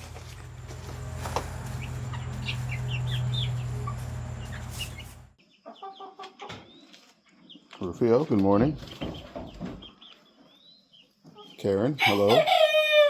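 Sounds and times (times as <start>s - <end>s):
steady low hum: 0.0s - 5.4s
chickens clucking: 0.0s - 13.0s.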